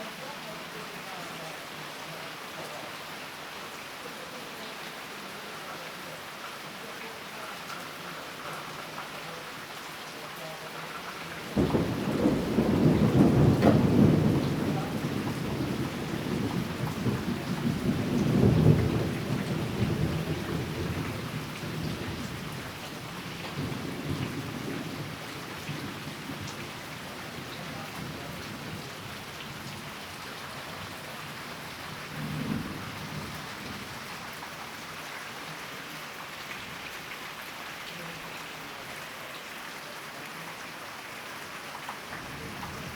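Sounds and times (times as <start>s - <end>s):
steady rainfall: 0.0s - 42.9s
thunder crack and rumble: 11.5s - 29.8s, 31.9s - 34.0s, 42.2s - 42.9s.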